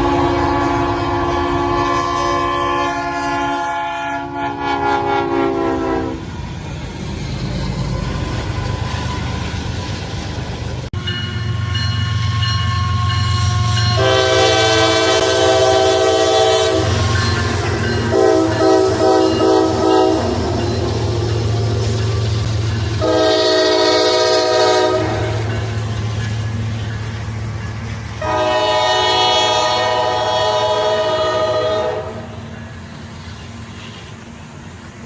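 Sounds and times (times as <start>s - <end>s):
locomotive air horn blasts: 0.0s - 6.3s, 12.2s - 20.6s, 23.0s - 25.5s, 28.2s - 32.4s
train rumbling past: 0.0s - 35.0s.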